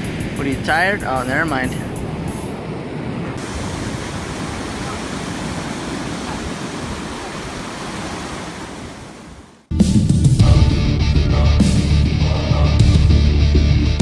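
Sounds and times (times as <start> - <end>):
ocean surf washing on beach: 0.0 - 9.7.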